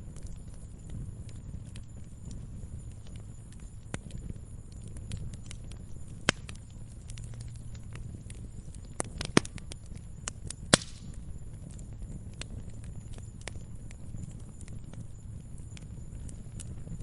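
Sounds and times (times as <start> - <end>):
fire crackling: 0.0 - 17.0
low steady rumble: 0.0 - 17.0.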